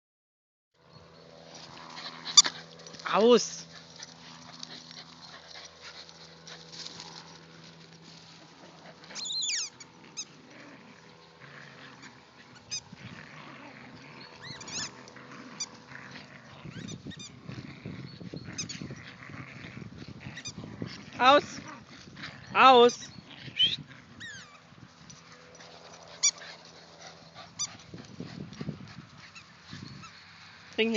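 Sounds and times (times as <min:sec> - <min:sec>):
squeaky toy squeaks: 0:09.2 - 0:09.8.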